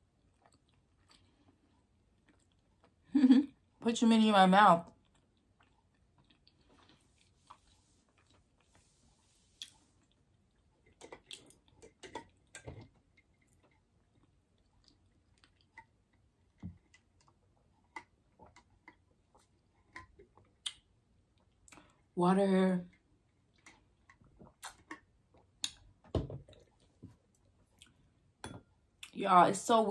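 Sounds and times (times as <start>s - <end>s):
person chewing food: 0.0s - 3.8s, 4.9s - 22.2s, 22.9s - 29.2s.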